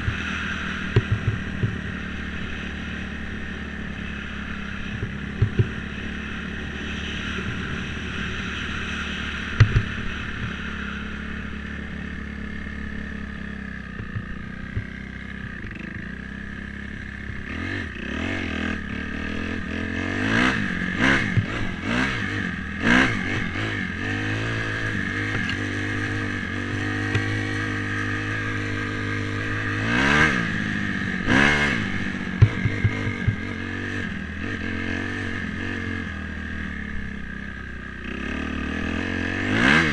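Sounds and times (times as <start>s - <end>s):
dirt bike engine revving: 0.0s - 39.9s
sharp knocks: 5.0s - 5.8s, 9.5s - 10.6s.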